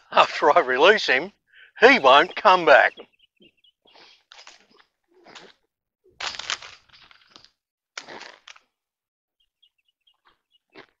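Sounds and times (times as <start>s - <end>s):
small birds chirping faintly: 0.3s - 5.6s, 9.4s - 11.0s.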